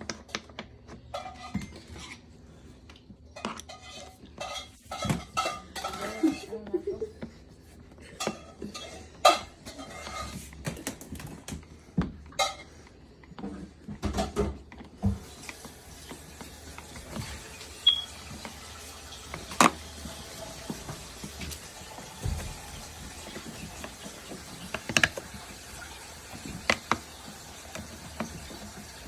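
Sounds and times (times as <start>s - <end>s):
hard plastic parts knocking and clicking: 22.1s - 29.0s.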